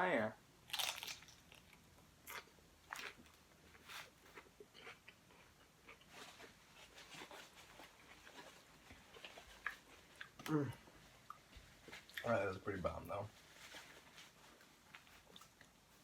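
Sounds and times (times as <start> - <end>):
person chewing food: 0.7 - 12.4, 14.6 - 16.0.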